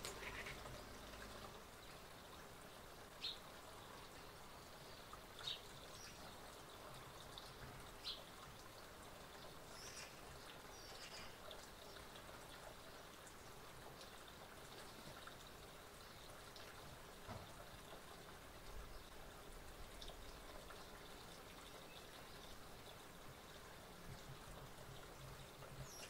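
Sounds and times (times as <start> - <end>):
small birds chirping: 0.0 - 2.4, 3.1 - 8.3, 9.6 - 12.2, 25.0 - 26.0
faint background hiss: 0.0 - 26.0.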